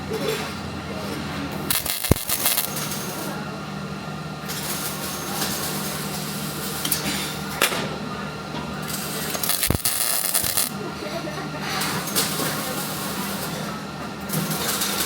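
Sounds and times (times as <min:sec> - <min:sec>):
steady electrical hum: 0:00.8 - 0:15.0
welding arc crackling and hissing: 0:01.7 - 0:03.4, 0:04.4 - 0:07.5, 0:08.8 - 0:10.9.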